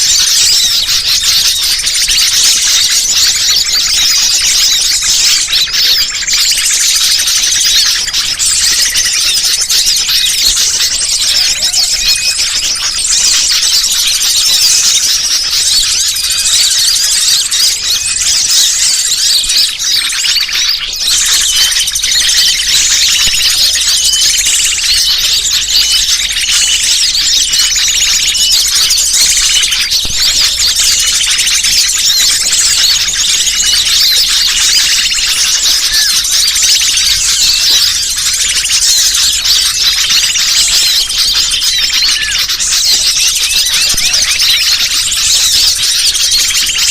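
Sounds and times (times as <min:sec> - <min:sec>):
small birds chirping and trilling: 0:00.0 - 0:46.9.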